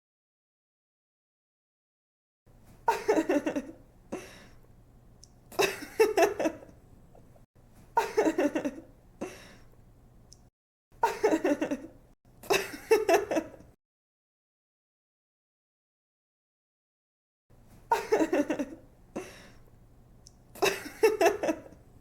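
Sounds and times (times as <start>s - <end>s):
woman giggling: 2.9s - 3.8s, 5.6s - 6.7s, 8.0s - 8.9s, 11.0s - 13.7s, 17.9s - 19.4s, 20.6s - 21.8s
quiet breaths: 4.1s - 4.8s, 9.1s - 10.3s, 19.1s - 19.9s.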